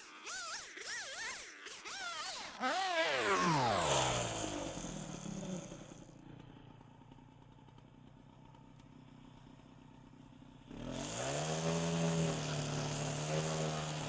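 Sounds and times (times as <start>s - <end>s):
chainsaw engine revving: 0.0s - 6.2s, 10.7s - 14.0s.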